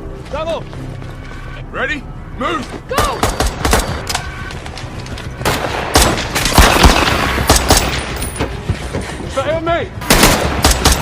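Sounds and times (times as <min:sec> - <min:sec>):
scattered gunshots: 0:05.4 - 0:08.1, 0:10.0 - 0:11.0
automatic weapon fire: 0:05.5 - 0:08.1.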